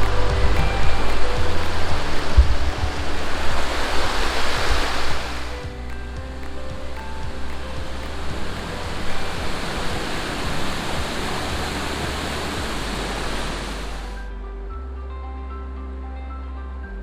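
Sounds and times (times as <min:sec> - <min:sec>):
waterfall rushing: 0:00.0 - 0:14.2
soft background music: 0:00.0 - 0:17.0.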